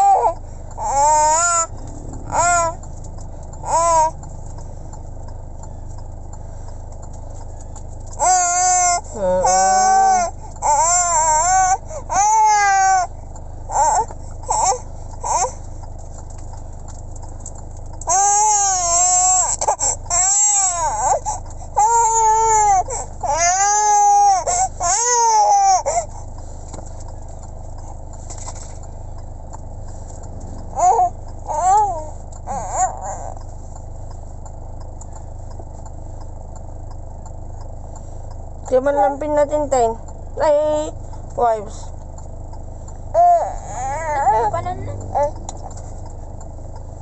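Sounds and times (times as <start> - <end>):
baby crying: 0.0 - 1.7, 2.3 - 2.8, 3.6 - 4.1, 8.2 - 13.1, 18.1 - 26.0, 30.8 - 33.4, 43.2 - 44.5
steady low hum: 0.0 - 47.0.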